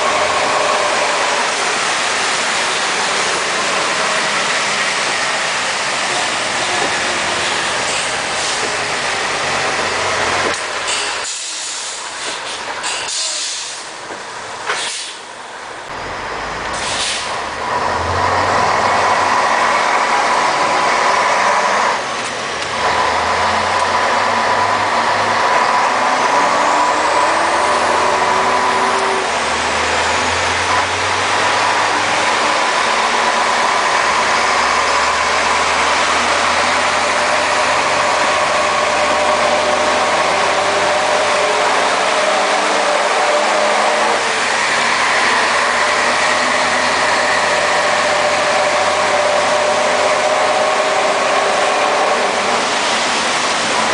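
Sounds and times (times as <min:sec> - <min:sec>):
truck diesel engine running: 0:15.7 - 0:53.9.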